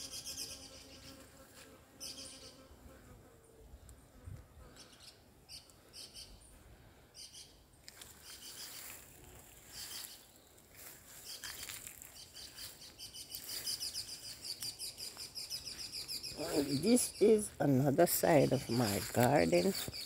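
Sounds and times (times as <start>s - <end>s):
small birds chirping: 0.0s - 1.2s, 2.0s - 2.7s, 4.6s - 20.0s.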